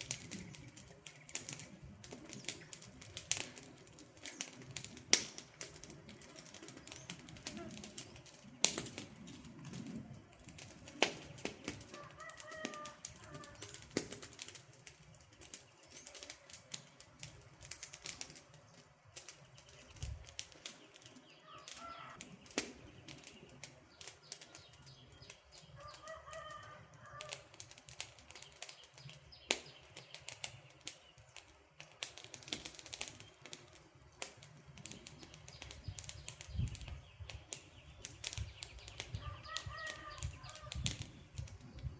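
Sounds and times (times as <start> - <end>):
campfire crackling: 0.0 - 41.9
faint bird calling: 7.4 - 8.0, 21.4 - 22.2, 39.0 - 41.1.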